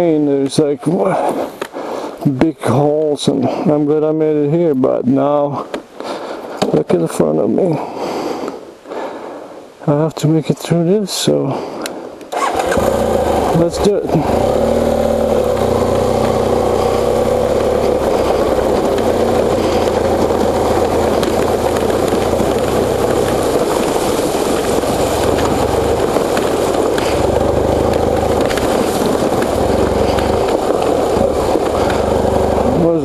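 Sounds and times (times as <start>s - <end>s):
motorcycle engine running: 12.4s - 33.0s.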